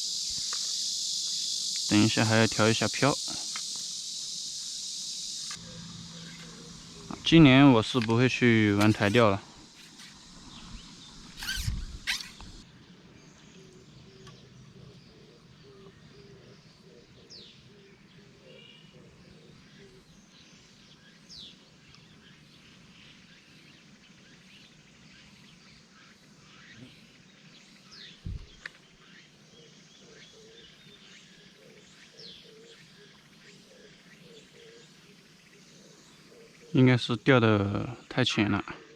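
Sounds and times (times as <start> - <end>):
faint bird chirps: 0.0 - 38.9
bird high falling whistle: 10.0 - 12.5.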